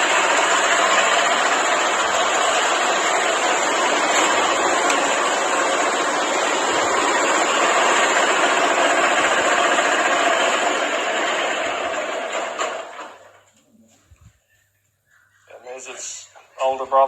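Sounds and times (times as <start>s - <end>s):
tractor engine running: 0.0s - 13.5s.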